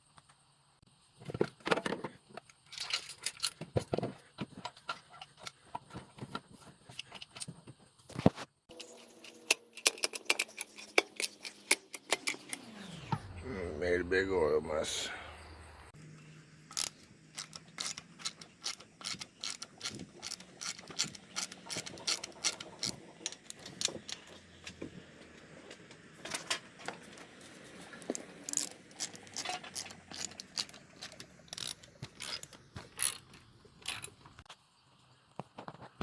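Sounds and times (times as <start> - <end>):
ratchet wrench clicking: 16.7 - 24.4, 28.0 - 34.1
metal tools clinking: 16.7 - 24.5, 27.9 - 34.3.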